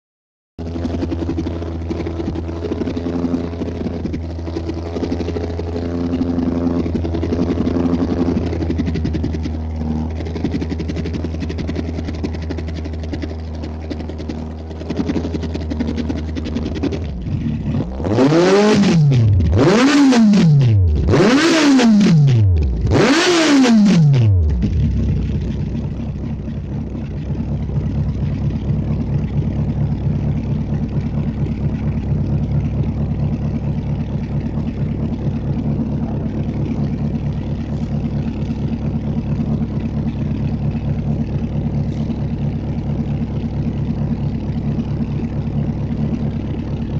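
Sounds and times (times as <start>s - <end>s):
motorcycle engine idling and revving: 0.6s - 46.9s.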